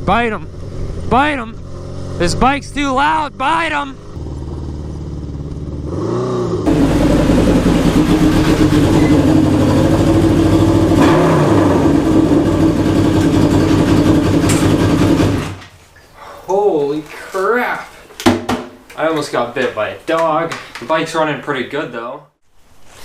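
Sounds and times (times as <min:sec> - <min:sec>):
motorcycle engine running: 0:00.0 - 0:15.6.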